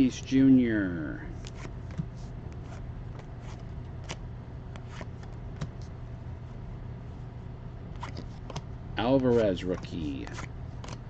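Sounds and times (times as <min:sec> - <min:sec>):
steady low hum: 0:00.0 - 0:11.0
cards flipped by hand: 0:01.4 - 0:05.9, 0:07.9 - 0:08.7, 0:09.6 - 0:11.0.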